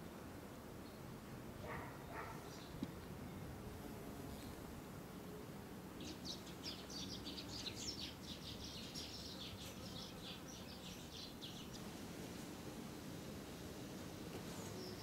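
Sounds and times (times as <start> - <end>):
small bird singing: 6.0 - 11.8, 14.7 - 15.0.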